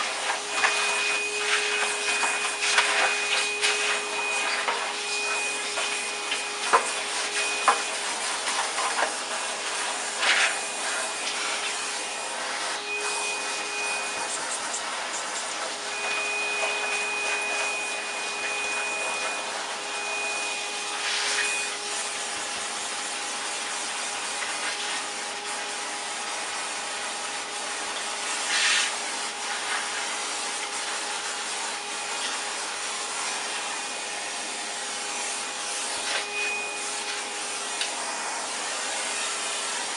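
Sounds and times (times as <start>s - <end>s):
vacuum cleaner running: 0.0s - 39.9s
air whistle: 12.8s - 14.4s, 15.8s - 21.8s.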